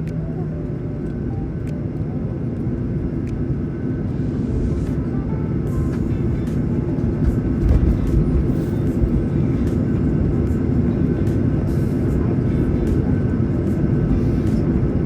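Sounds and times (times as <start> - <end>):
faint steady whine: 0.0 - 15.0
jet engines rumbling in cabin: 0.0 - 15.0.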